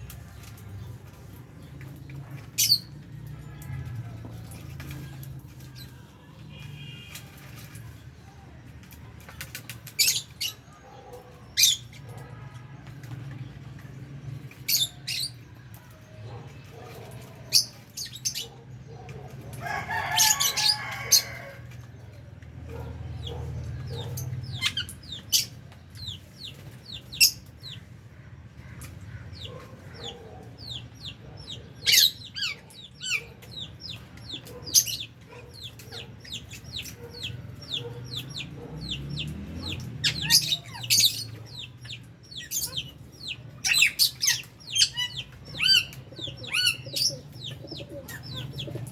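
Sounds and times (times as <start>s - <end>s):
birds chirping shrilly: 9.5s - 12.2s, 16.8s - 19.0s, 19.7s - 21.7s, 22.8s - 27.8s, 28.5s - 48.9s.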